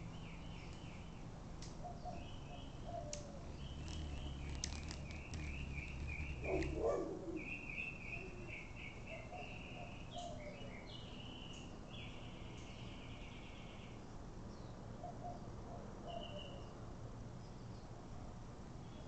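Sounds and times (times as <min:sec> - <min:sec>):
small birds chirping: 0:00.0 - 0:14.8
low hum: 0:02.6 - 0:06.9.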